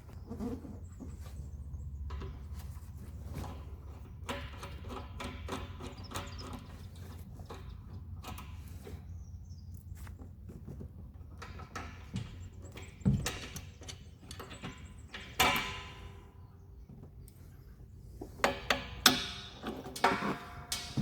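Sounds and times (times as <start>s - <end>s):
tools clicking and scraping: 18.4s - 21.0s
sharp knocks: 18.5s - 21.0s.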